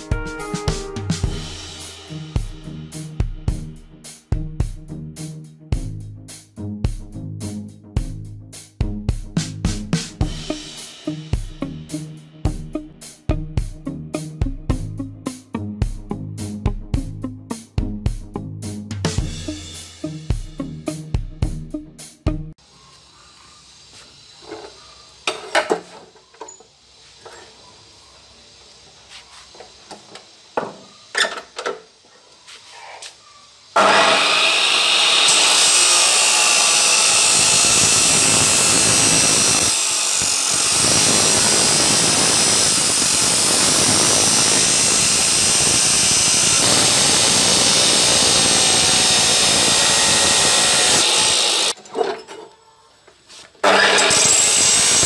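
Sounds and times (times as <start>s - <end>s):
abrasive saw cutting metal tube: 10.2s - 12.6s, 33.8s - 51.8s, 53.6s - 55.0s.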